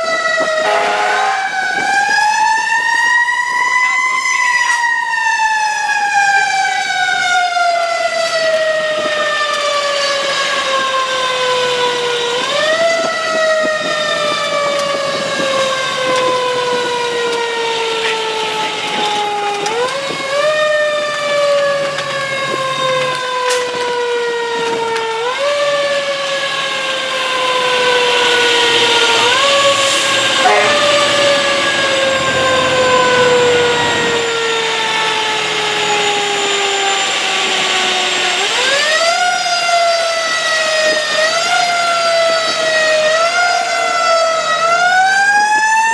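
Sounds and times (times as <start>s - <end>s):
fire engine siren wailing: 0.0s - 45.9s
truck engine rumble: 11.3s - 40.0s.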